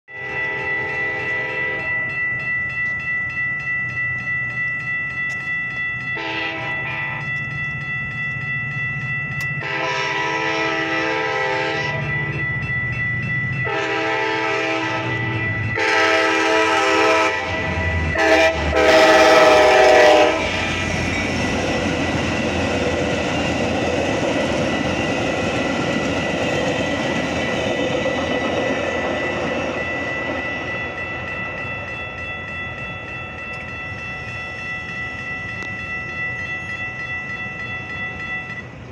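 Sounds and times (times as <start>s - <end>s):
train horn blasts: 0.1s - 2.0s, 6.2s - 7.4s, 9.6s - 12.4s, 13.6s - 20.8s
crossing warning bells ringing: 0.1s - 38.9s
train wheels rumbling on rails: 0.1s - 38.9s.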